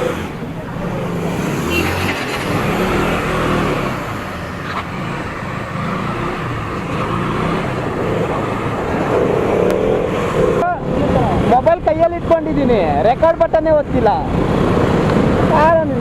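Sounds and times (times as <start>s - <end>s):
road noise: 0.0s - 16.0s
wind: 0.0s - 16.0s.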